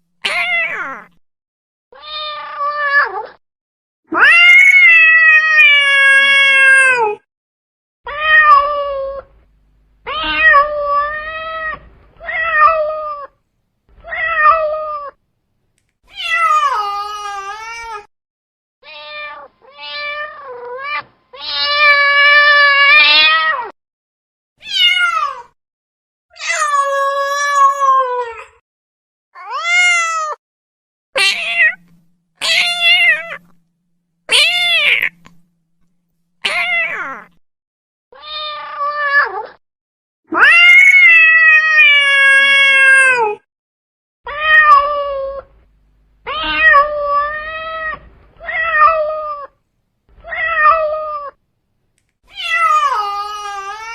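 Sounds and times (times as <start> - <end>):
cat meowing: 0.2 - 1.2, 2.0 - 3.4, 8.1 - 9.4, 10.0 - 13.4, 14.0 - 15.2, 18.8 - 23.7, 24.6 - 25.5, 29.4 - 30.4, 31.2 - 33.6, 34.3 - 35.5, 36.4 - 37.4, 38.2 - 39.6, 40.3 - 43.4, 44.3 - 45.6, 46.2 - 51.4, 52.3 - 53.9.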